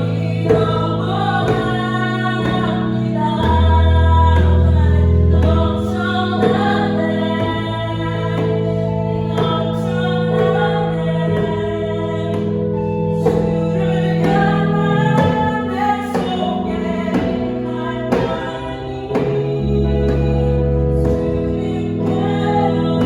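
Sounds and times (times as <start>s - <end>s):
keyboard chords: 0.0s - 23.0s
woman singing: 0.0s - 23.0s
djembe strikes: 13.2s - 23.0s.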